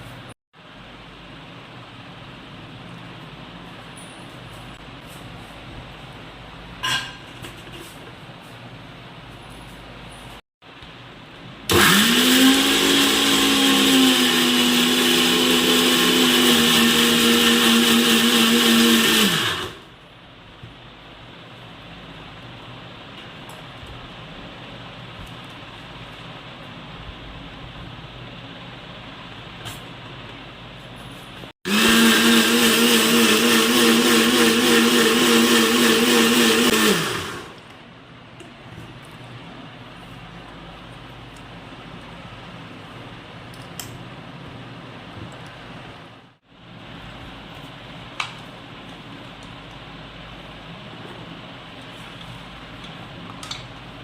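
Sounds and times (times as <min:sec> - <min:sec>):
electric mixer grinder running: 0:11.7 - 0:19.8, 0:31.7 - 0:37.6
kitchen blender whirring: 0:11.7 - 0:19.9, 0:31.7 - 0:37.6.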